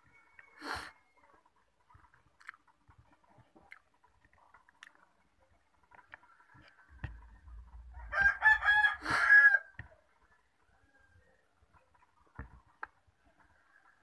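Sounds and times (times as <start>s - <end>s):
person quietly chewing: 0.4s - 5.2s.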